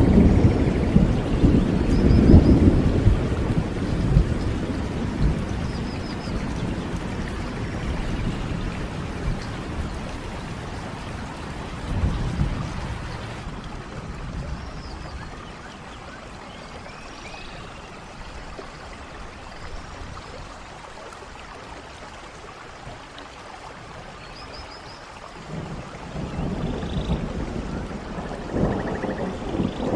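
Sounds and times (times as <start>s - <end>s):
low thunder rumbling: 0.0s - 13.4s, 26.0s - 29.9s
steady rain falling: 0.0s - 16.9s, 17.6s - 29.9s.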